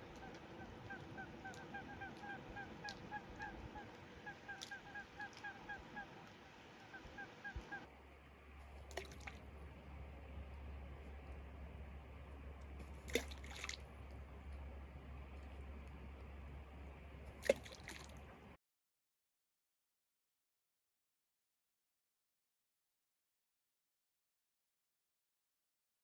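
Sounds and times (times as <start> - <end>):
steady low hum: 0.0 - 18.6
waterbirds calling: 0.0 - 18.6
faint clicks: 0.1 - 4.0.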